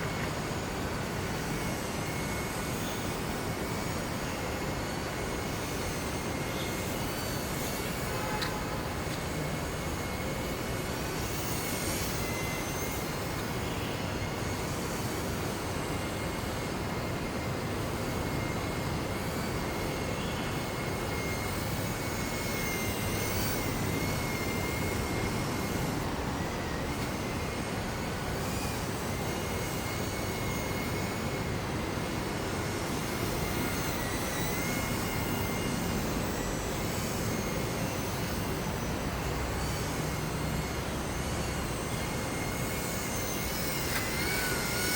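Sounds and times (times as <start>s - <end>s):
model plane motor whine: 0.0s - 44.9s.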